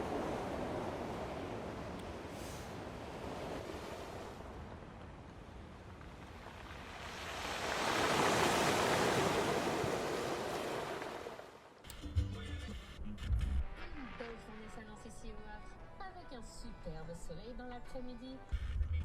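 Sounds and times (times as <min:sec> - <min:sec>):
sea waves breaking on beach: 0:00.0 - 0:11.8.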